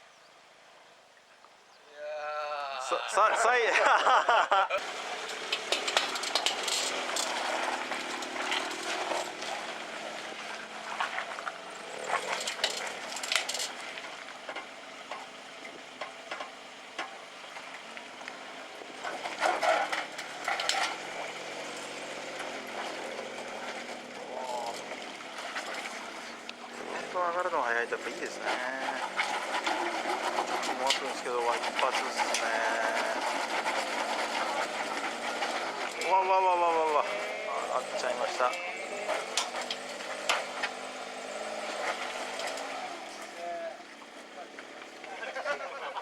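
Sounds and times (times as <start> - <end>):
faint car engine revving: 2.0 - 46.0
crackle of brush: 4.8 - 15.3, 22.4 - 43.2.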